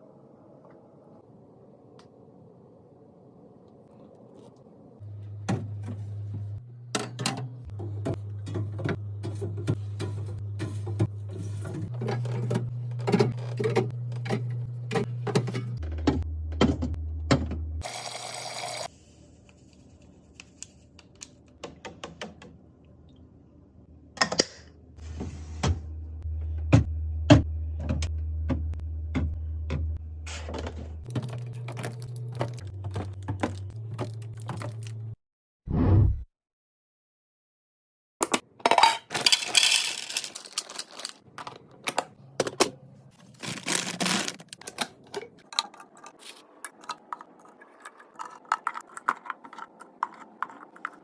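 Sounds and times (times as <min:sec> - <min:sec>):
items clicking and knocking in fridge: 0:05.4 - 0:17.7, 0:21.1 - 0:22.6, 0:26.5 - 0:35.2, 0:38.2 - 0:51.0.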